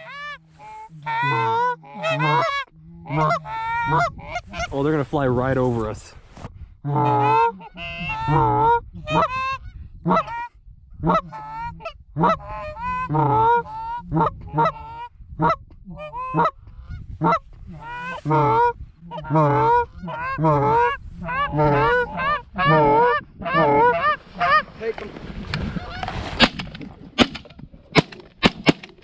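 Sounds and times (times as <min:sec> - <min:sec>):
goose honking and clucking: 0:00.0 - 0:04.8, 0:06.8 - 0:28.8.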